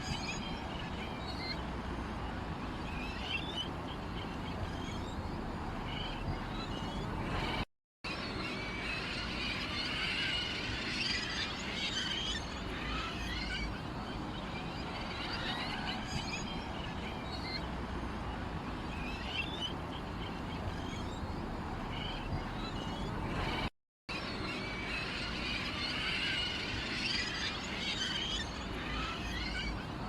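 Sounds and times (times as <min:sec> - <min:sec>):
songbirds chirping: 0:00.0 - 0:07.6, 0:08.2 - 0:23.7.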